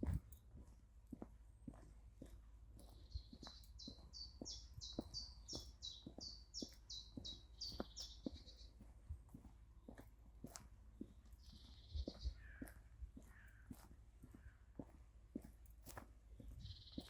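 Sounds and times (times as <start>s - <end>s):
soft footsteps on a path: 0.0s - 17.0s.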